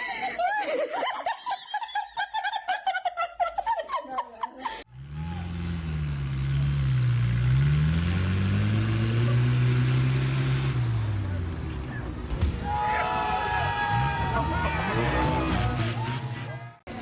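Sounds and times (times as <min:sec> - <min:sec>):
vehicle engine running: 0:04.9 - 0:16.8.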